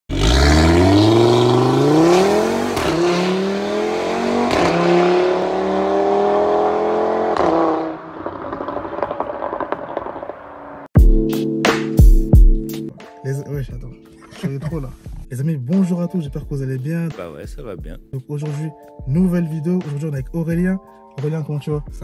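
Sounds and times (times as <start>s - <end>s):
car engine accelerating hard: 0.1s - 10.8s.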